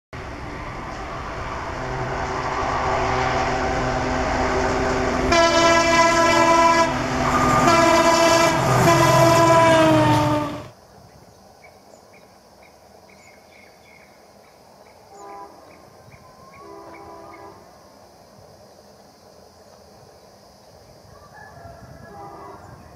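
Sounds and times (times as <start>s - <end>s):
diesel locomotive approaching: 0.1s - 22.9s
multi-tone train horn blasts: 0.9s - 10.7s, 15.1s - 17.7s, 21.8s - 22.9s.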